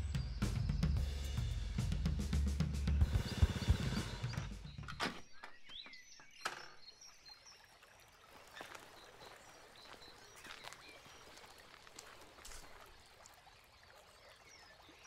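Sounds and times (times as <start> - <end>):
drum-kit music: 0.0 - 4.9.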